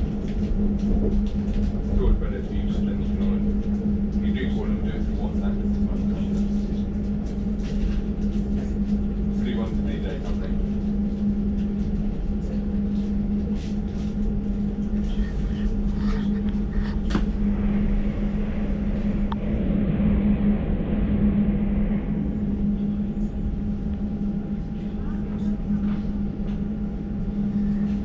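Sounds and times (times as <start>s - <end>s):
train wheels humming and rumbling: 0.0s - 28.0s
rushing noise: 16.9s - 23.9s.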